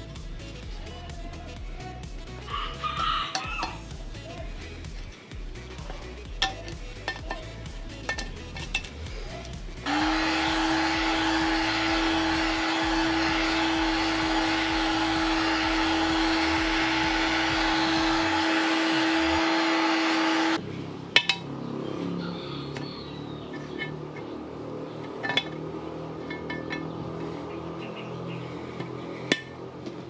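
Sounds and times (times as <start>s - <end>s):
heat gun blowing: 9.8s - 20.6s.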